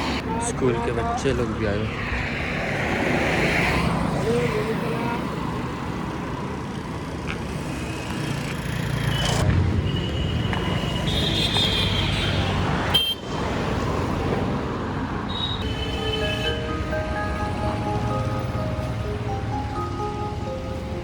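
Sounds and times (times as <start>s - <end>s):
engine and tyre rumble: 0.0s - 21.0s
background music: 15.6s - 21.0s.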